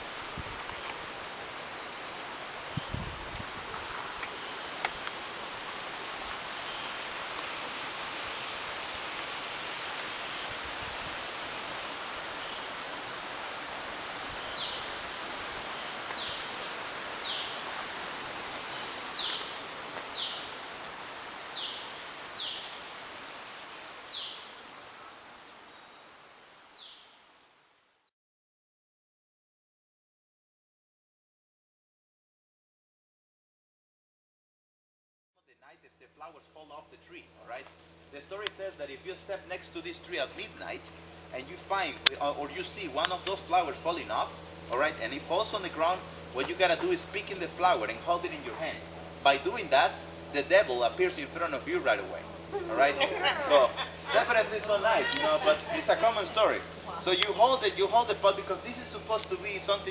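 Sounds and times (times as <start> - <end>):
insects hissing: 0.0 - 27.6, 35.5 - 59.9
bird high falling calls: 3.6 - 26.2, 51.2 - 59.9.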